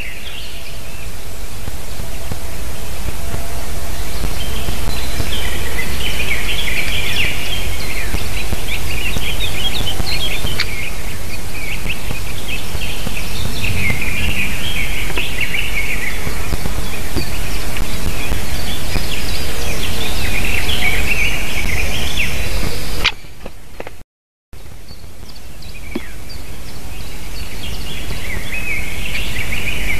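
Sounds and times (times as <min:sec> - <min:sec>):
low rumble: 0:00.0 - 0:23.0
steady hiss: 0:00.0 - 0:23.3, 0:24.6 - 0:29.9
birds chirping: 0:00.0 - 0:24.0, 0:24.6 - 0:29.9.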